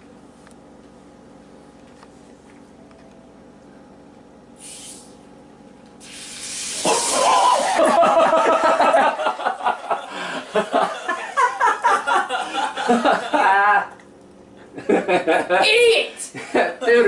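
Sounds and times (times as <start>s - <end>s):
soda can hissing and spraying: 4.6s - 5.2s, 6.0s - 7.8s
people yelling and laughing: 6.8s - 13.9s.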